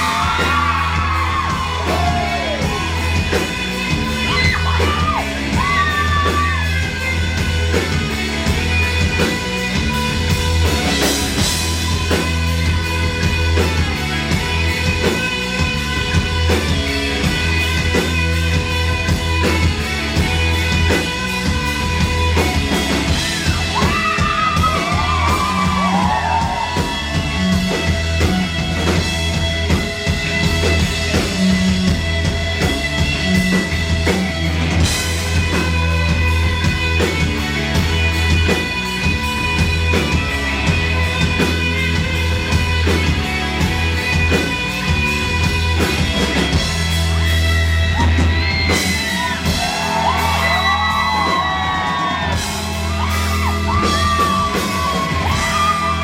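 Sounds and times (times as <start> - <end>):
bass line: 0.0 - 56.0
rock band playing live: 0.0 - 56.0.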